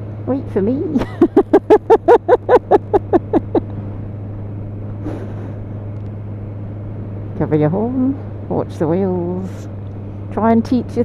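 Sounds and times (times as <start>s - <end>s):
motorcycle engine drone: 0.0s - 11.0s
person laughing: 1.0s - 3.7s, 5.0s - 5.7s.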